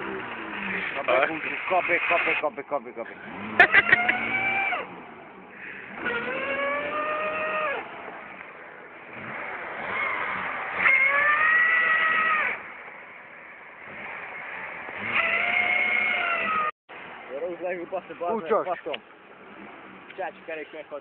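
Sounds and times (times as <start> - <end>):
two-stroke engine revving: 0.0 - 12.7, 13.8 - 16.7.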